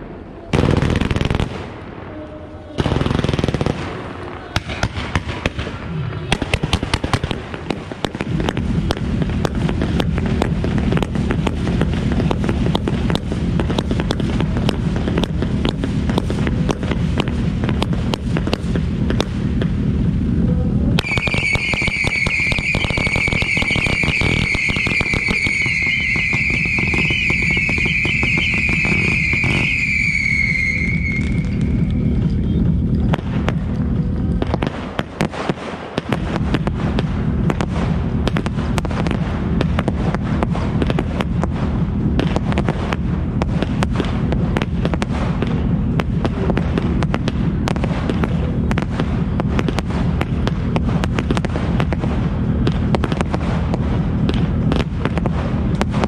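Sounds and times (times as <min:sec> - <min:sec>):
crackling fireworks: 0:00.0 - 0:56.0
firework fountain surges: 0:02.8 - 0:56.0
high wavering whistle: 0:21.0 - 0:32.1.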